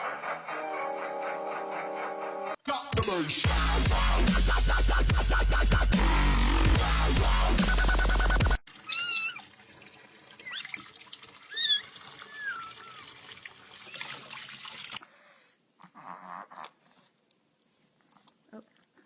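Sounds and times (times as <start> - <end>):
cat meowing: 8.9 - 9.4.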